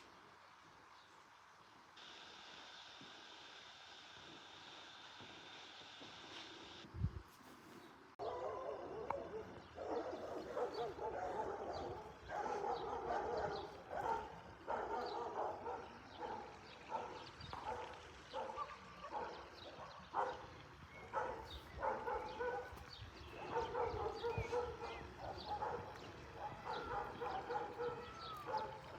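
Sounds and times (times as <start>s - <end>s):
dog barking: 8.2s - 20.5s, 21.1s - 28.9s.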